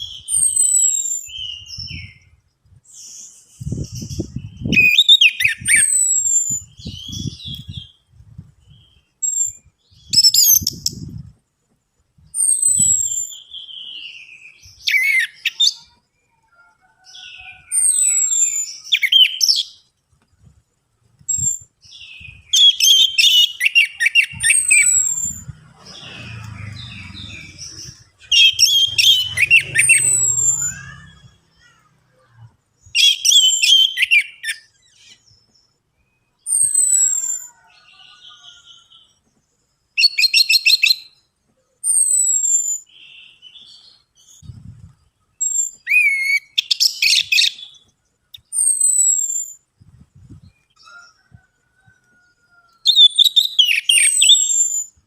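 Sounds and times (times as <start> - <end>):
thrush singing: 24.3 - 31.8.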